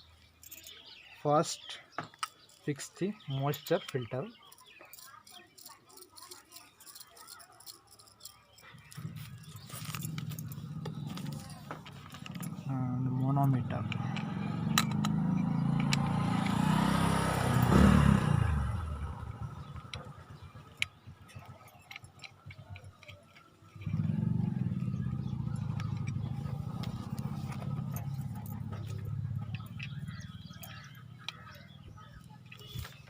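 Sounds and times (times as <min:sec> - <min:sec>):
low engine hum: 0:09.0 - 0:21.5, 0:23.7 - 0:33.0
vehicle passing by: 0:12.2 - 0:20.6, 0:23.8 - 0:33.0.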